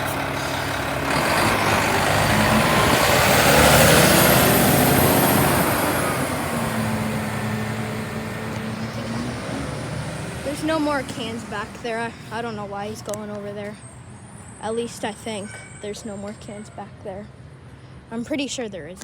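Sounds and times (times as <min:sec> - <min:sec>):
garbage truck driving past: 0:00.0 - 0:12.8.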